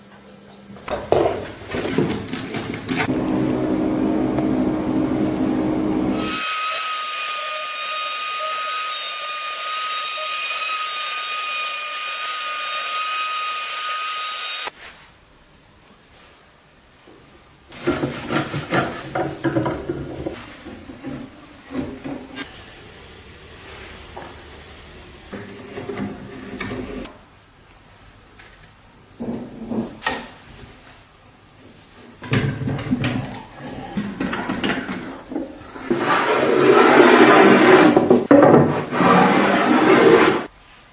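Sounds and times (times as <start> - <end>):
wooden knocks and scraping: 0.9 - 3.3, 17.8 - 22.5, 32.2 - 40.5.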